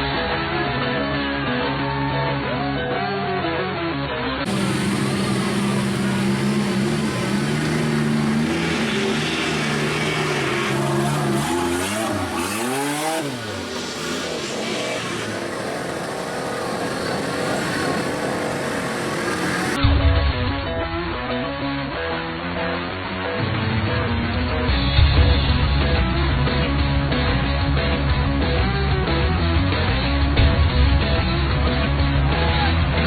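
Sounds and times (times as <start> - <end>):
truck engine revving: 4.4 - 19.8.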